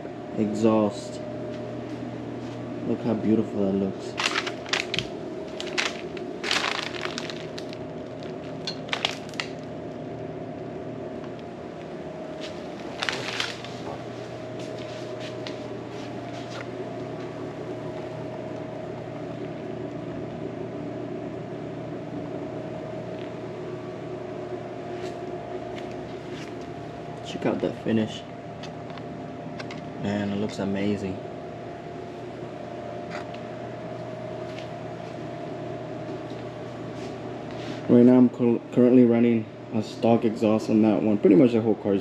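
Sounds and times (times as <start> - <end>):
steady hum: 0.0 - 42.0
crinkling handling noises: 3.9 - 10.0, 11.1 - 20.0, 24.8 - 30.7.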